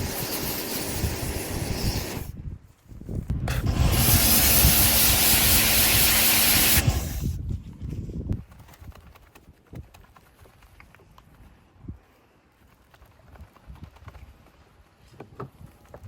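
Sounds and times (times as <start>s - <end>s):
pressure washer spraying water: 0.0s - 2.3s, 3.5s - 7.4s.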